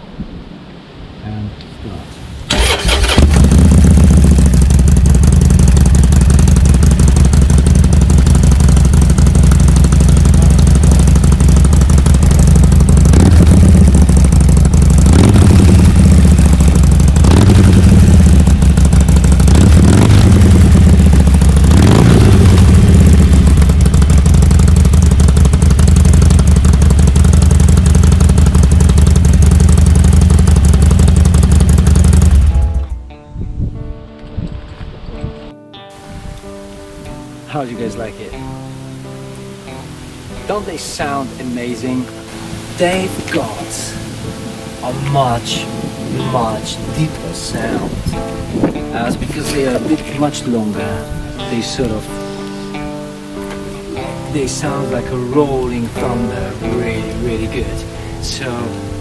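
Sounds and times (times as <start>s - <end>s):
motorcycle engine idling and revving: 2.5s - 33.2s, 44.1s - 50.5s.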